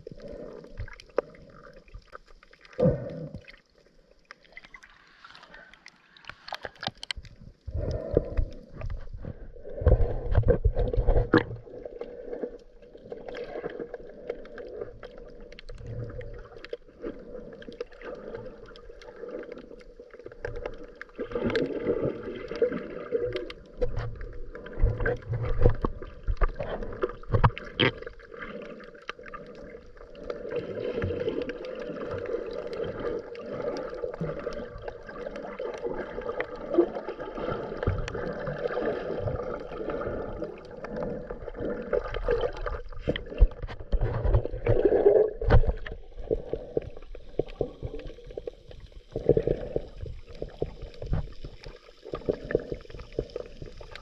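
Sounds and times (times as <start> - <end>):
regulator breaths underwater: 0.0 - 1.9, 7.6 - 12.7, 44.7 - 51.2
sharp clicks and crackles: 5.8 - 9.1
bubbles gurgling: 9.7 - 54.0.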